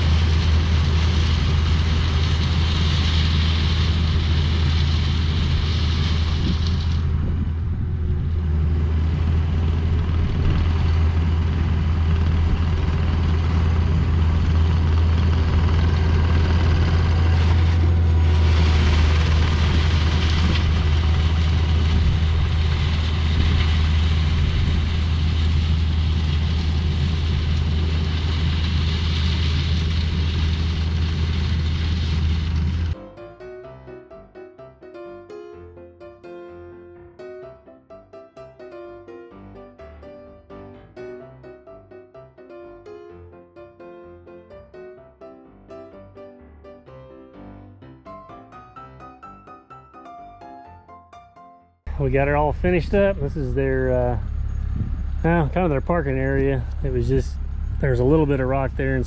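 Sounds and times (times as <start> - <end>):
heavy diesel engine running: 0.0 - 33.0, 51.9 - 59.0.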